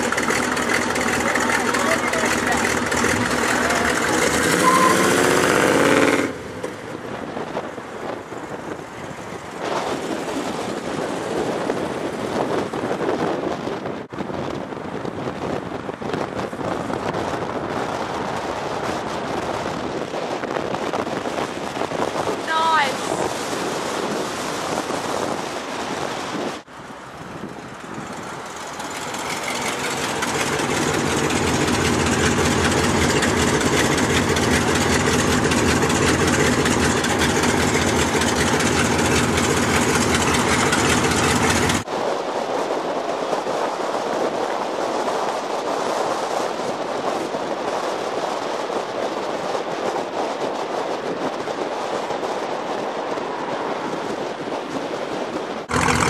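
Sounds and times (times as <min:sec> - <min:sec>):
car engine running: 0:00.0 - 0:07.1, 0:27.5 - 0:41.8, 0:55.7 - 0:56.0
car driving in street traffic: 0:00.0 - 0:56.0.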